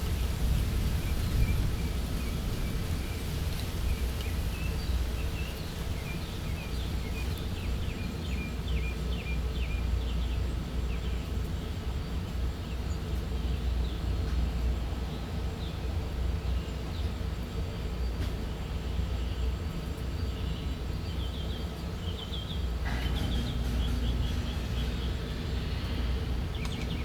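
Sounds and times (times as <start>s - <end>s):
small birds chirping: 0.2s - 14.2s, 18.0s - 27.0s
low background rumble: 19.2s - 27.0s.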